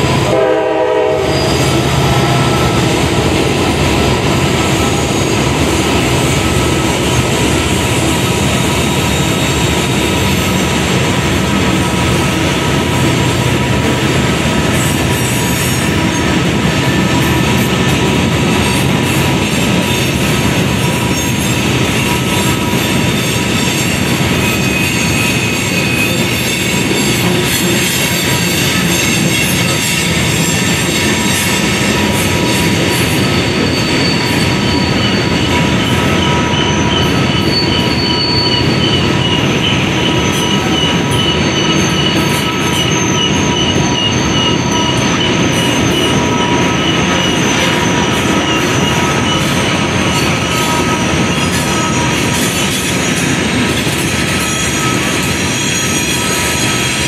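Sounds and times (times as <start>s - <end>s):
freight train wheels rumbling: 0.0s - 57.0s
pulsing squeal: 0.7s - 12.7s, 18.6s - 57.0s
wheel flange squeal: 1.2s - 10.9s, 18.6s - 57.0s.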